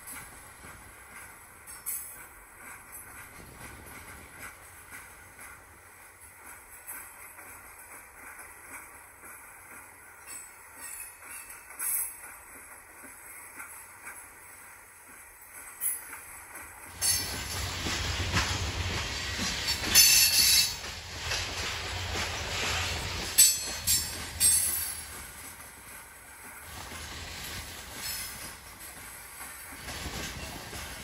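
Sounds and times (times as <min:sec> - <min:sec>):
wheels squealing and clanking: 0:19.4 - 0:25.1.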